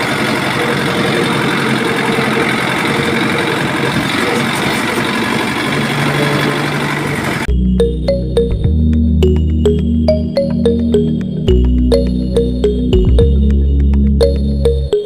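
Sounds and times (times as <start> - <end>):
motor rattling: 0.0 - 7.5.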